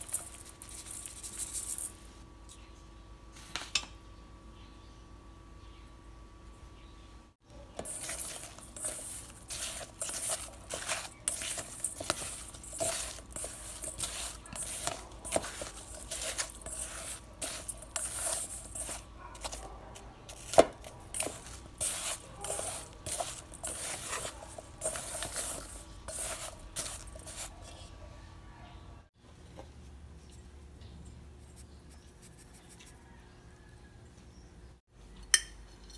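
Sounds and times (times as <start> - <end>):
spatula scraping metal bowl: 7.8 - 19.6, 20.3 - 27.9.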